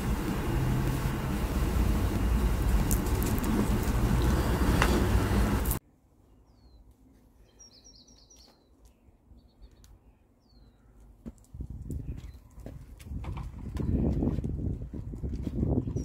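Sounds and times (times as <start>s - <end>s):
loud rushing noise: 0.0s - 5.8s.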